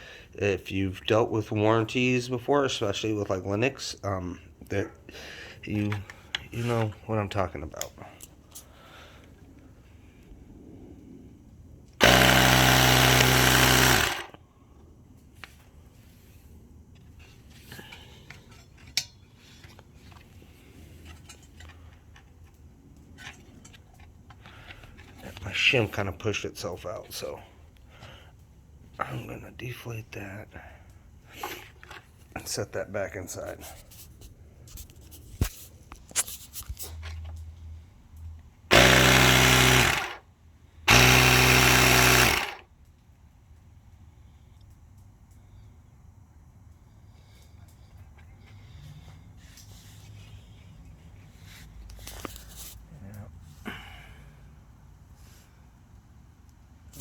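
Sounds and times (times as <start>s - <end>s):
air compressor running: 12.0s - 14.4s, 38.7s - 40.2s, 40.9s - 42.6s.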